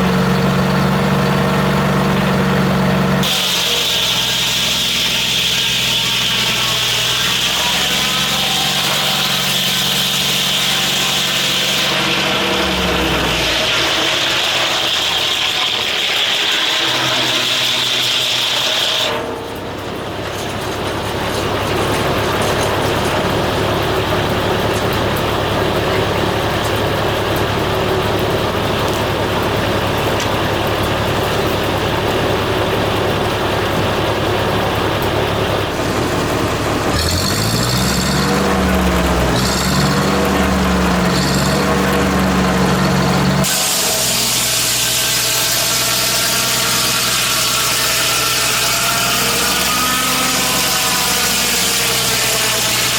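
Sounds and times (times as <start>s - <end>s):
engine humming: 0.0s - 52.9s
saw blade cutting log: 3.2s - 23.3s, 36.2s - 52.9s.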